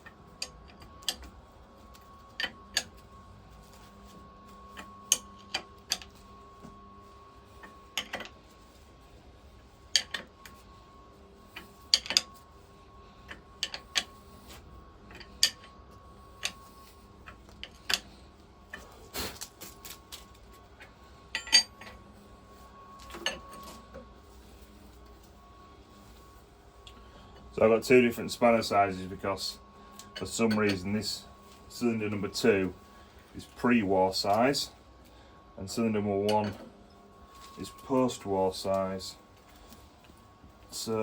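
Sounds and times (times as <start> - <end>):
spanners clinking on metal: 21.3 - 22.0, 30.2 - 31.0.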